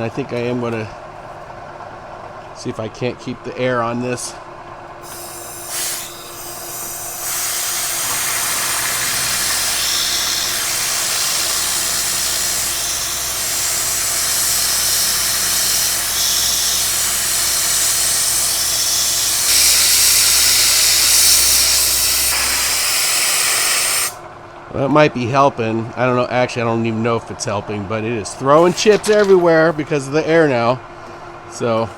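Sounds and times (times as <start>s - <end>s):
compressed air hissing: 5.0s - 24.2s
milling machine humming: 5.0s - 24.2s, 28.4s - 31.9s.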